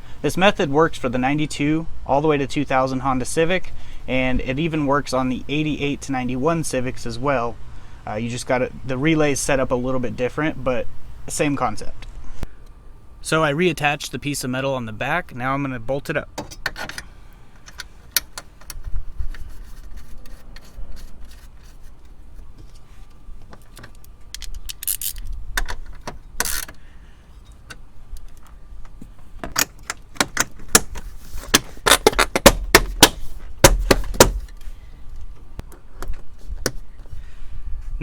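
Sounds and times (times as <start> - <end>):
tools and metal parts clicking: 23.5 - 26.8.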